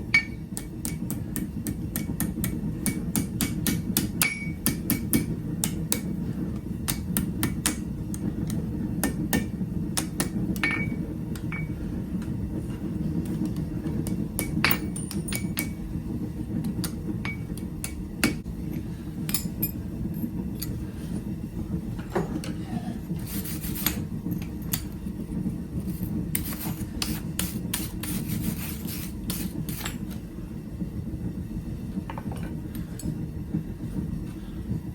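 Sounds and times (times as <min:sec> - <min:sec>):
hammer striking steel on anvil: 0:00.1 - 0:11.8, 0:13.2 - 0:15.8, 0:16.6 - 0:19.8.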